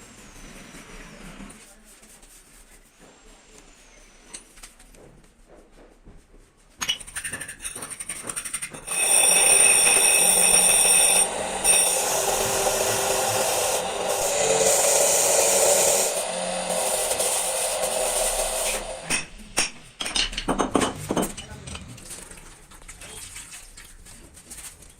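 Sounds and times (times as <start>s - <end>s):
power tool whining: 8.8s - 19.1s.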